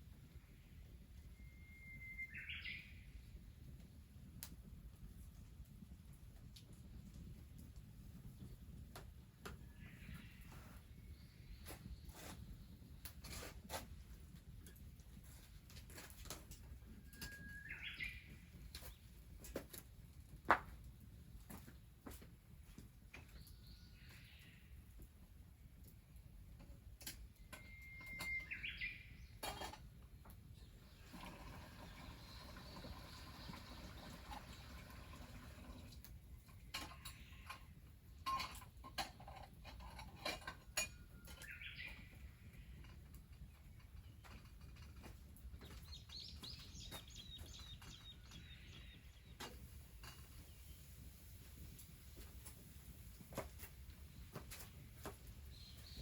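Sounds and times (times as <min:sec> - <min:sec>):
bird call: 0:27.6 - 0:29.2.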